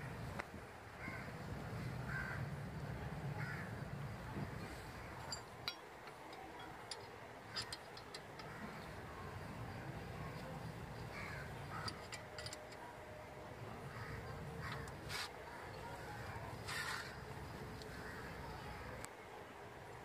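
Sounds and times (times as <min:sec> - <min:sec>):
metal parts clicking and tapping: 0:05.2 - 0:09.5, 0:10.3 - 0:12.8
bird calling: 0:13.9 - 0:18.8.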